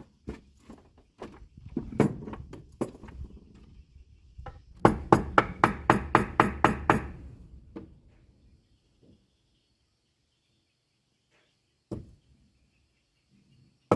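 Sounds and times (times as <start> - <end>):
hammering on wood: 4.8 - 7.2.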